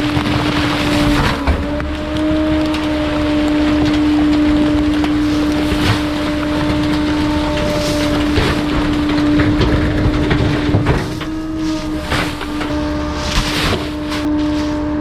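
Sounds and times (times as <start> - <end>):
material cracking and crunching: 0.0 - 15.0
rough mechanical rumble: 0.0 - 15.0
steady mechanical hum: 0.0 - 15.0.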